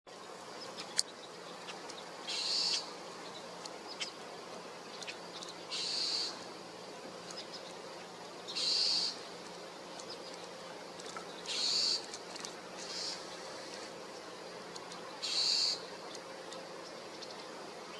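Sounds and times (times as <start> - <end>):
bird harsh raspy call: 2.3 - 2.9, 5.7 - 6.4, 8.5 - 9.2, 11.5 - 12.1, 12.8 - 13.3, 15.2 - 15.8.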